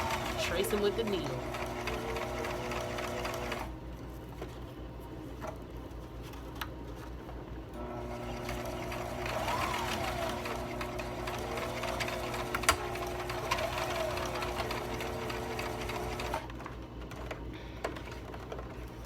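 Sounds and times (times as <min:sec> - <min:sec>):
sewing machine whining: 0:00.0 - 0:03.7, 0:07.8 - 0:16.5
sewing machine clicks: 0:08.4 - 0:16.5.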